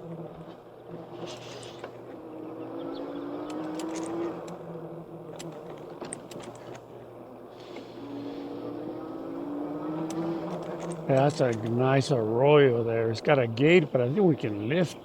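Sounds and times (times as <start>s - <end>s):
electric bike motor whining: 1.0s - 11.6s.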